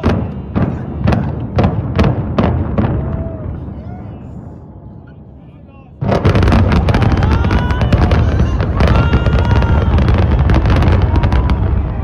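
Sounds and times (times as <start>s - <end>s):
rapid explosive blasts and crackles: 0.0s - 3.6s, 6.0s - 12.0s
heavy low rumble: 6.1s - 12.0s.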